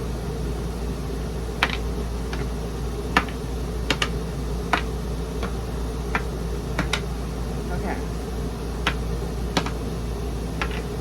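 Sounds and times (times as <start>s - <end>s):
steady low hum: 0.0s - 11.0s
game balls clicking on board: 1.6s - 2.5s, 3.2s - 7.1s, 8.8s - 9.0s, 9.6s - 9.8s, 10.6s - 10.9s.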